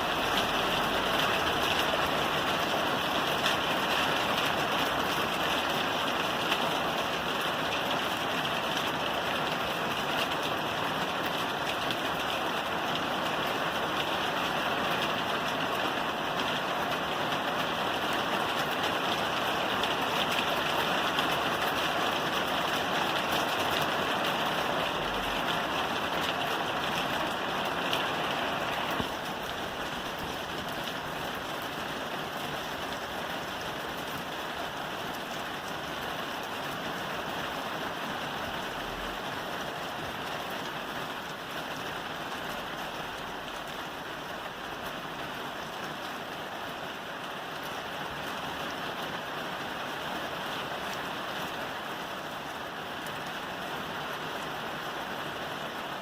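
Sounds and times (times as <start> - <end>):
rain falling on a roof: 0.0 - 56.0.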